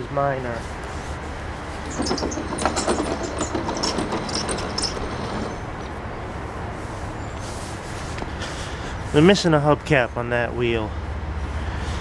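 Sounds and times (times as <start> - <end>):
clicking and rattling handling: 1.8 - 5.9
lawn mower engine running: 1.8 - 5.9.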